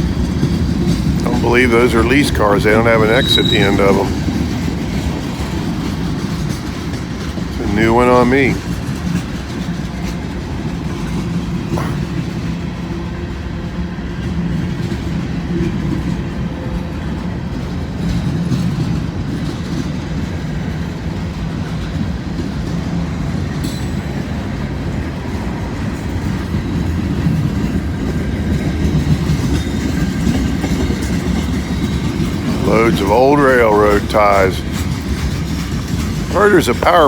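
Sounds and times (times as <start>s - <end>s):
freight train rolling past: 0.0s - 37.0s
steel wheels clattering on rails: 0.0s - 37.0s.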